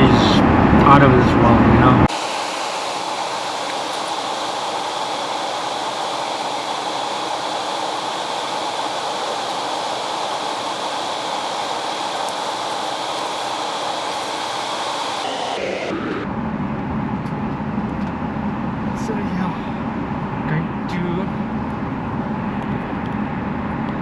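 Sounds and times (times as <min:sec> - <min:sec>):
airplane cabin roar in flight: 0:02.1 - 0:19.0.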